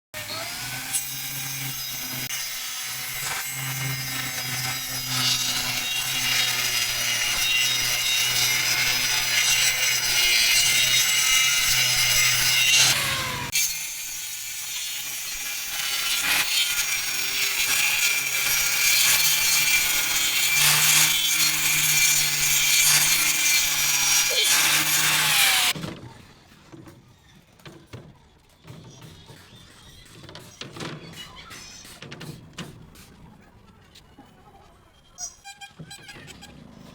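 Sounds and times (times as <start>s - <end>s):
power tool motor hum: 0.2s - 13.6s
hissing rasp of wood cutting: 0.2s - 25.7s.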